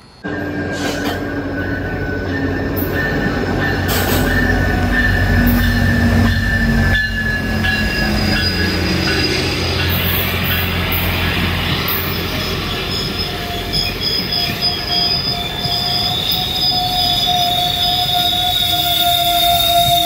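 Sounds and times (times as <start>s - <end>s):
low train rumble: 0.0s - 20.0s
train wheels squealing: 0.0s - 20.0s.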